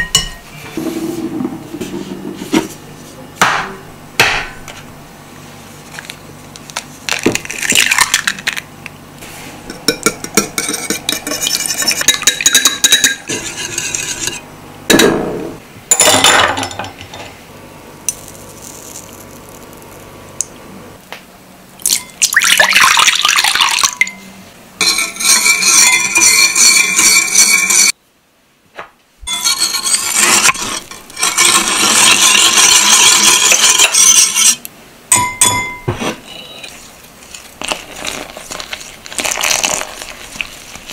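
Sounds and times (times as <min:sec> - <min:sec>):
egg cracking: 0:06.0 - 0:08.7
chopsticks beating egg in bowl: 0:09.7 - 0:14.4, 0:24.9 - 0:27.9, 0:29.4 - 0:34.6.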